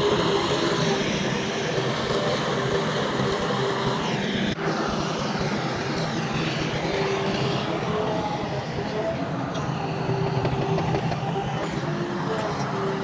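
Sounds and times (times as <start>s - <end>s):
heavy diesel engines under load: 0.0s - 13.0s.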